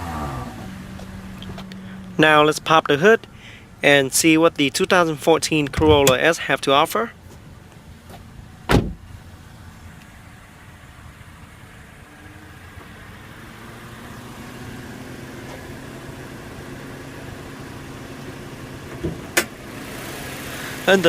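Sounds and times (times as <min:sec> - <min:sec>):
car engine idling: 0:00.0 - 0:21.0
thump: 0:08.7 - 0:09.0.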